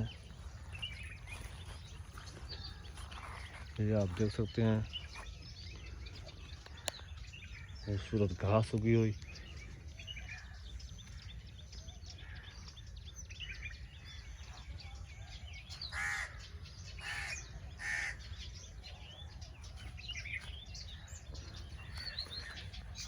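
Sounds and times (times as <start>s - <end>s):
small birds chirping: 0.0s - 23.0s
crow cawing: 15.8s - 18.5s.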